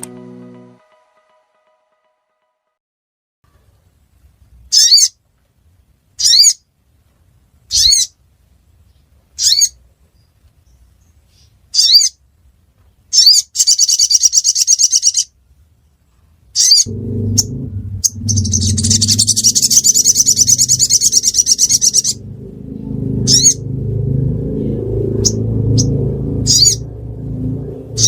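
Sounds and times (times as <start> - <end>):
bird chirping: 13.1 - 15.3, 16.6 - 23.7
bird rapid high trill: 16.6 - 28.0.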